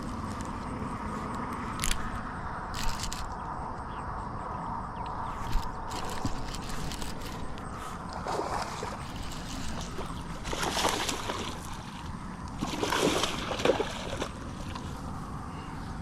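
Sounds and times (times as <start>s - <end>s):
fish splashing in water: 5.9s - 14.9s.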